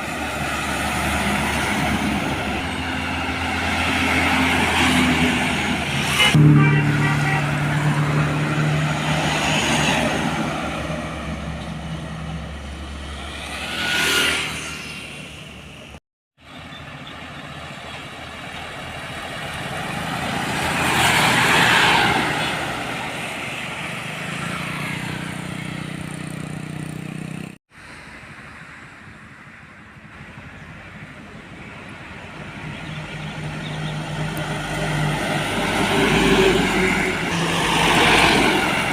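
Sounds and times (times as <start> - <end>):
heavy trucks passing by: 0.0 - 38.9
low engine drone: 6.2 - 8.8.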